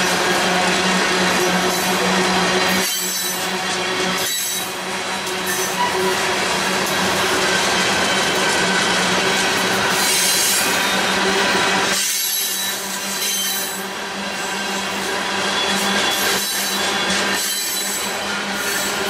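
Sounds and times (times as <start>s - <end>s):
freight train wheels grinding on rails: 0.0s - 19.0s
thin wheel squeal: 12.0s - 13.8s, 15.5s - 19.0s.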